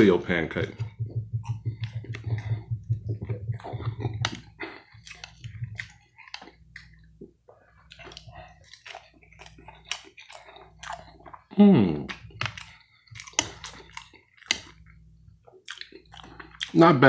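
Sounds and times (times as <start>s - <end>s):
chewing soft food: 0.6s - 17.0s
wet mouth clicks and smacks: 0.7s - 6.9s.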